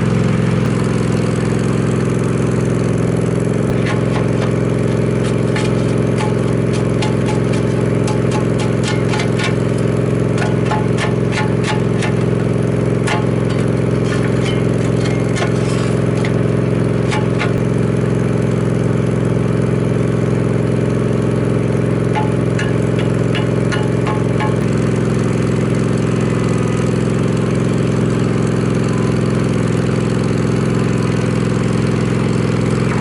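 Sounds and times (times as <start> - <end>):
loader engine running: 0.0 - 33.0
sharp clicks and scrapes: 3.7 - 12.3, 13.0 - 16.4, 17.0 - 17.6, 22.1 - 24.8.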